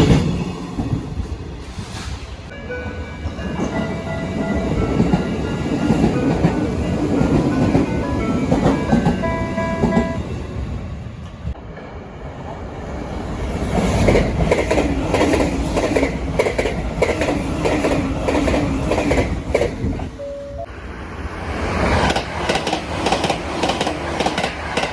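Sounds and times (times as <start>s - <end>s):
train wheels clicking over rail joints: 13.7s - 20.2s, 21.9s - 24.9s.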